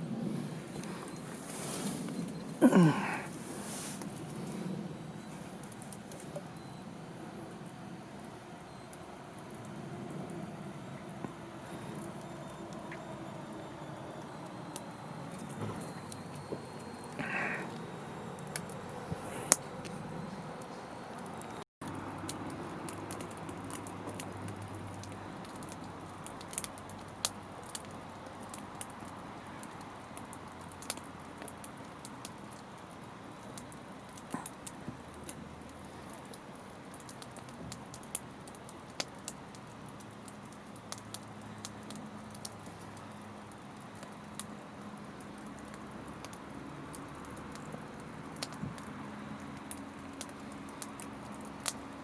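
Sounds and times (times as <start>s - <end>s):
soft fire hiss: 0.0s - 22.0s
campfire crackling: 0.0s - 52.0s.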